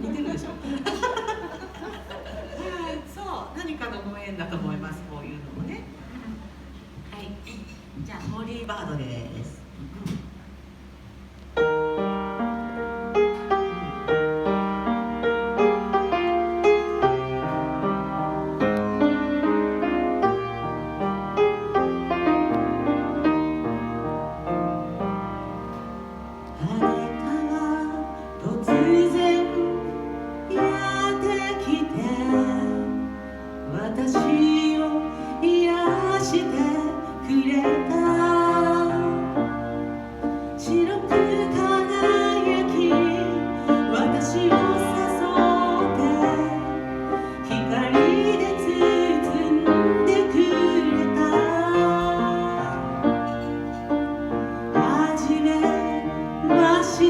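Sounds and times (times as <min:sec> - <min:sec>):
piano accompaniment: 0:10.6 - 0:57.0
woman singing a slow ballad: 0:26.6 - 0:33.1, 0:33.7 - 0:39.6, 0:40.4 - 0:53.6, 0:54.8 - 0:57.0.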